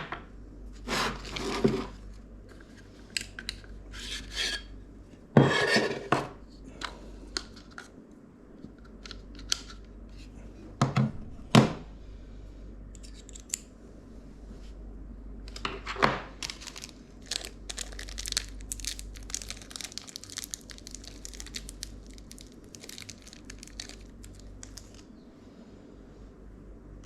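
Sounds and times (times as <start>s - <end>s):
packaging tearing and crinkling: 16.4s - 25.0s.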